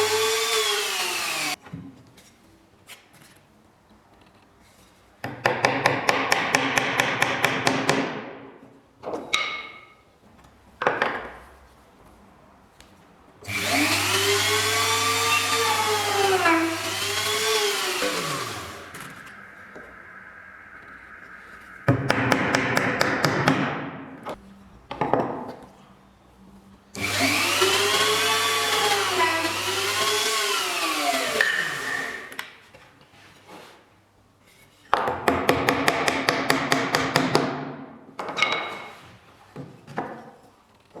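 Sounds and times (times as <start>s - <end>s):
whining woodworking tool: 0.0s - 1.6s, 13.5s - 23.7s, 27.0s - 32.4s.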